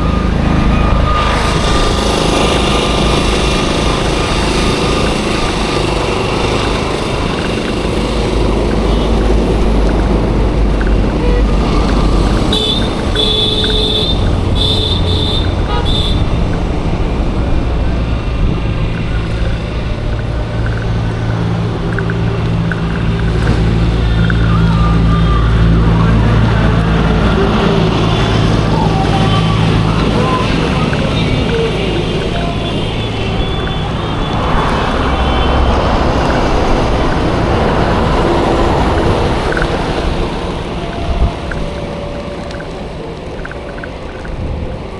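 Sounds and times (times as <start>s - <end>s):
passing vehicles rumbling: 0.0s - 44.9s
high-pitched vehicle horn toots: 11.1s - 16.5s.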